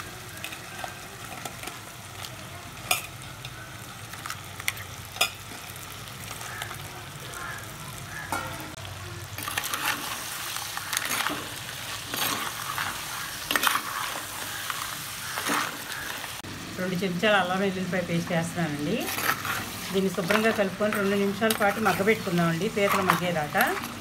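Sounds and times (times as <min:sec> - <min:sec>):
crabs sizzling in hot oil: 0:00.0 - 0:24.0
steel spoon scraping pot: 0:09.4 - 0:16.1, 0:19.0 - 0:24.0.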